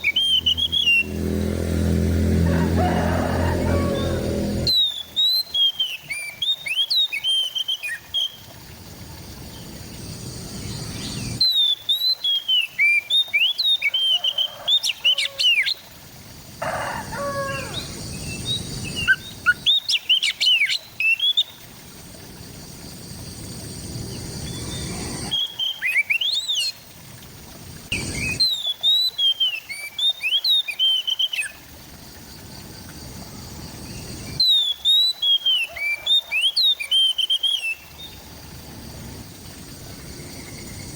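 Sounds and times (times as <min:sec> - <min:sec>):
bird singing whistled notes: 0:00.0 - 0:01.2, 0:04.7 - 0:08.4, 0:10.7 - 0:14.6, 0:24.4 - 0:26.7, 0:27.9 - 0:31.6, 0:34.2 - 0:37.8.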